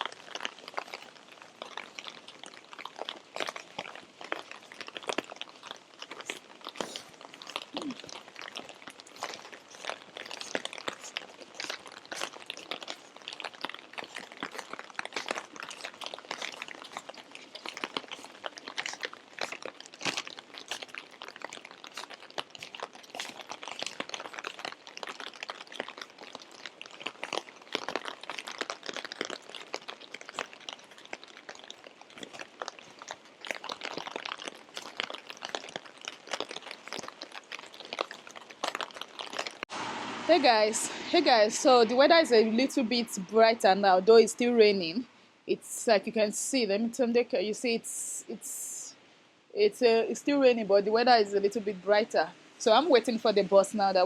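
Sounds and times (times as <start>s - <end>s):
rain falling: 34.6s - 44.8s.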